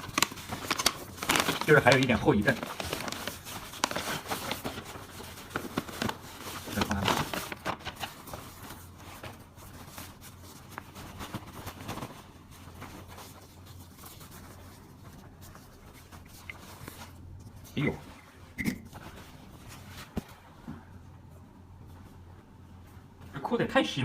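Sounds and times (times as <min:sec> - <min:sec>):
parcel packaging tearing: 0:00.0 - 0:08.2.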